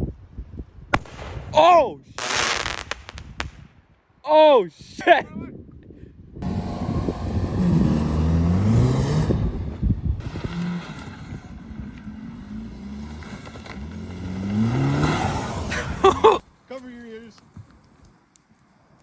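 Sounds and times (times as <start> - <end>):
vehicle engine revving: 6.4 - 16.4.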